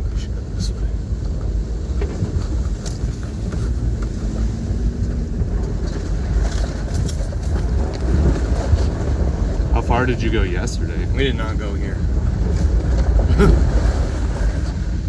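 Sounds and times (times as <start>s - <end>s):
engine and tyres rumbling: 0.0s - 15.0s
truck knocks and rattles: 0.0s - 15.0s.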